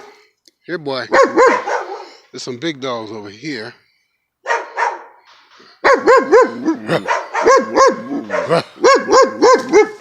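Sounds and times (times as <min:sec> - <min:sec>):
big dogs barking: 0:01.1 - 0:02.2, 0:04.4 - 0:05.2, 0:05.8 - 0:10.0.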